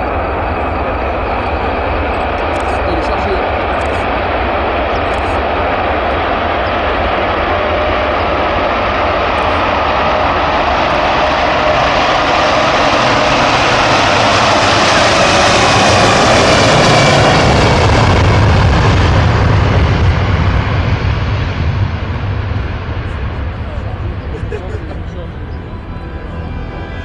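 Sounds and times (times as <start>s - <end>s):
jet engines running: 0.0s - 27.0s.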